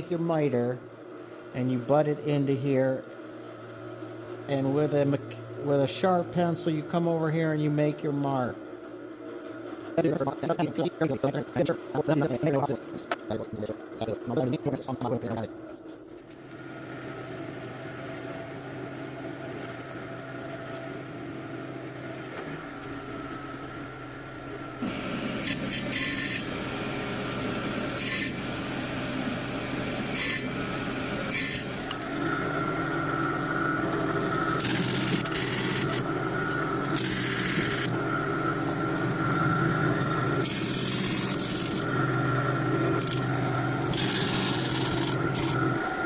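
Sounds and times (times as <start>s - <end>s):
power tool motor running: 24.8s - 46.0s.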